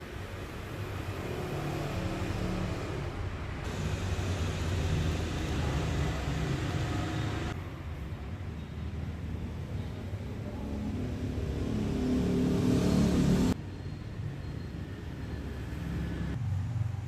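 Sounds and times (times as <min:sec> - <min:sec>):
road and traffic noise: 0:00.0 - 0:17.0
vehicle engine running: 0:03.6 - 0:07.6.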